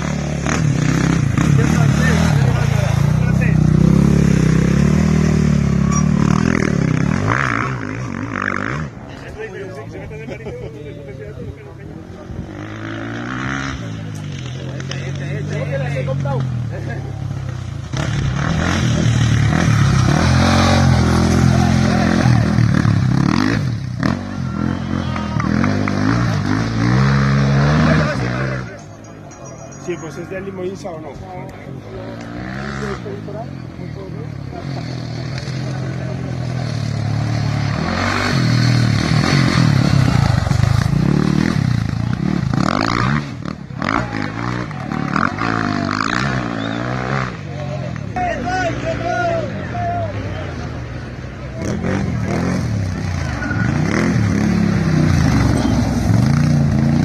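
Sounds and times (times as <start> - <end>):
motorcycle engine revving past: 0.0 - 9.0, 12.4 - 16.5, 17.3 - 28.8, 34.4 - 47.6, 51.5 - 57.0.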